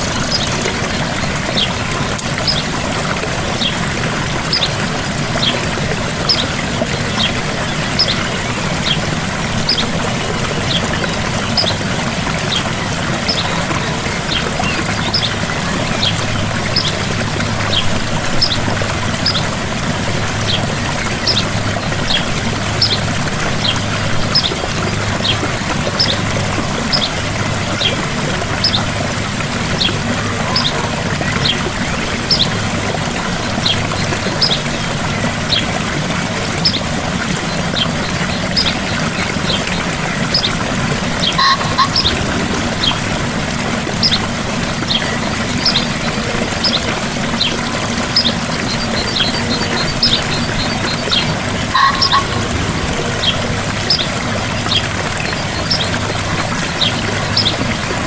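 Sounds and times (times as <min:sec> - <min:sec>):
waterfall splashing: 0:00.0 - 0:58.0
bird chirping: 0:41.2 - 0:43.0, 0:48.2 - 0:54.8.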